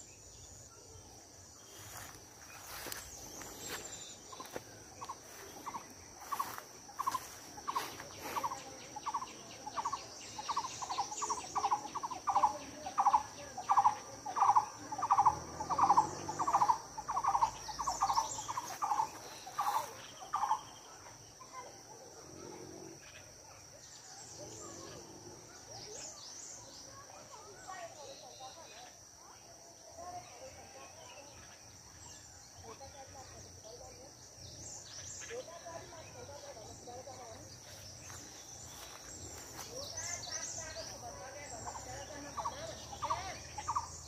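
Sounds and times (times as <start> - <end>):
high-pitched insect drone: 1.7 - 20.7.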